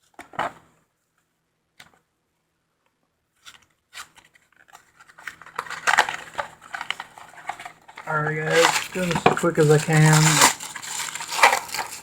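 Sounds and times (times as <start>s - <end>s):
cardboard box and packaging clicks: 3.4s - 12.0s.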